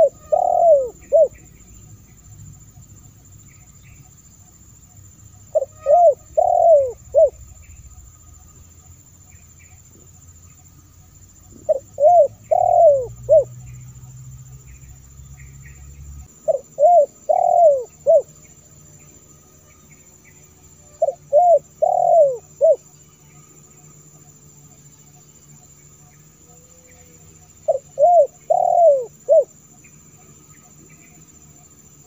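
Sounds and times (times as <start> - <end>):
dove cooing: 0.0 - 1.5, 5.5 - 7.7, 11.5 - 13.6, 16.4 - 18.3, 21.0 - 22.9, 26.7 - 29.5.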